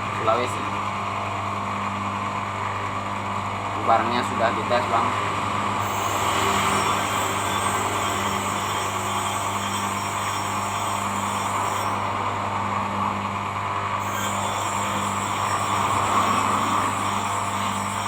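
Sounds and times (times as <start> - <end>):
machine humming: 0.0 - 18.0.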